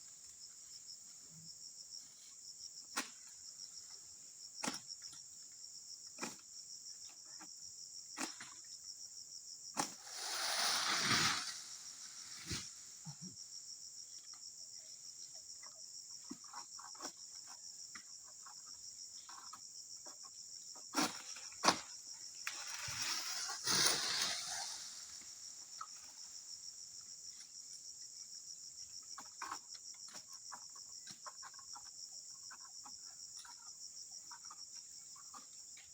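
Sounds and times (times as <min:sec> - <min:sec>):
insects chirping: 0:00.0 - 0:35.9
rustling swishes: 0:10.0 - 0:12.8.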